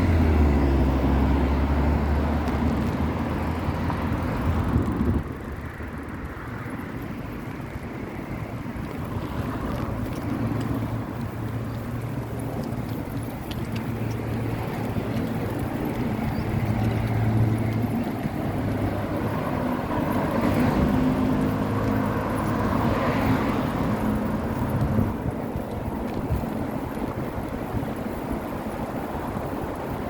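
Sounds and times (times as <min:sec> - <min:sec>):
wind on microphone: 0:00.0 - 0:05.7, 0:07.8 - 0:30.0
traffic engine hum: 0:00.0 - 0:30.0
vehicles passing: 0:00.0 - 0:30.0.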